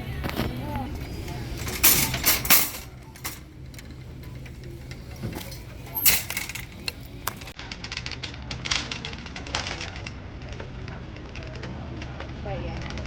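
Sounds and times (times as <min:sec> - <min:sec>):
clicking and clattering: 0:00.2 - 0:08.0.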